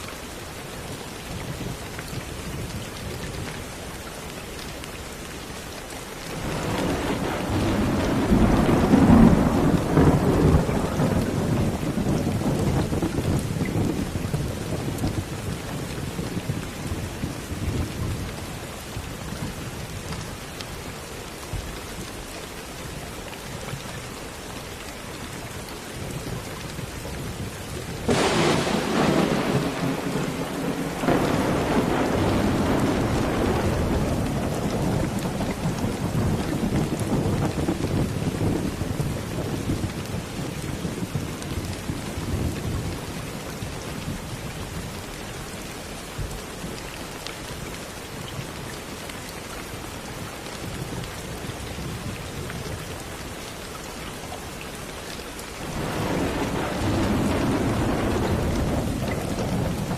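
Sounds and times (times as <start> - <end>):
steady rain: 0.0 - 59.9
sharp thunderclap: 6.4 - 14.0, 28.0 - 40.0, 55.6 - 59.9
rolling thunder: 6.4 - 15.3, 28.0 - 43.1, 55.6 - 59.9.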